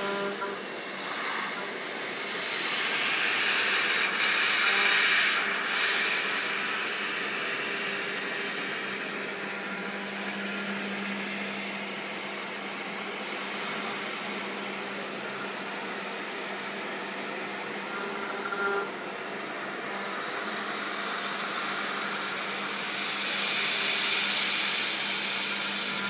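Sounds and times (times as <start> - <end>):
router motor hum: 0.0 - 26.0
broad hiss: 21.0 - 26.0.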